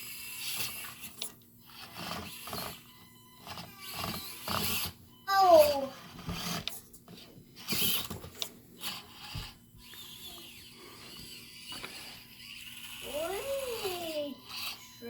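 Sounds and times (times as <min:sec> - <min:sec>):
small electric motor whirring: 0:00.0 - 0:15.0.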